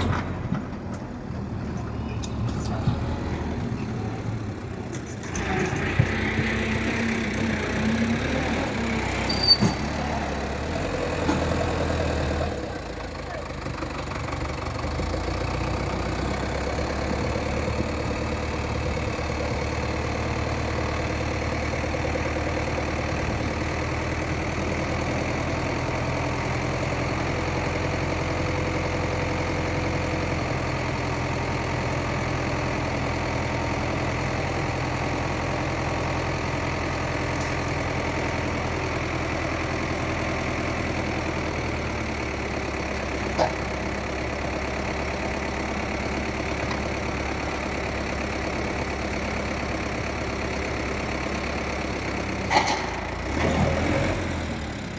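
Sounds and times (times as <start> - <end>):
tractor diesel engine idling: 0.0 - 54.9.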